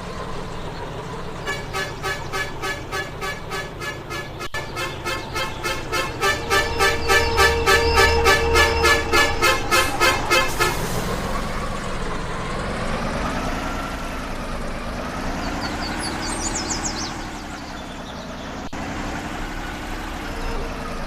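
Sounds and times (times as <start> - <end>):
vehicle engine running: 0.0 - 21.0
rapid horn-like beeps: 1.5 - 10.9.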